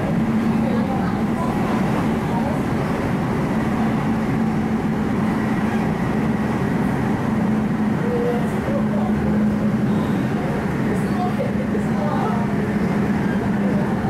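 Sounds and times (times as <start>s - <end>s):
train cabin rumble: 0.0s - 14.0s.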